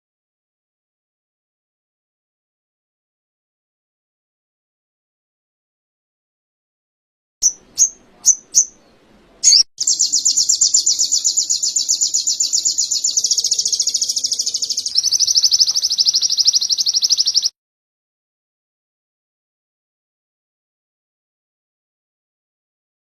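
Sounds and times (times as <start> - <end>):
songbird chirping and trilling: 7.4 - 17.5.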